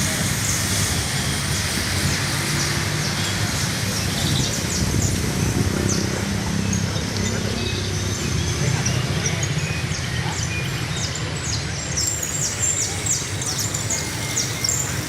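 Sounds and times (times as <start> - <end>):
loud steady noise: 0.0 - 15.0
canary chirping: 7.6 - 15.0.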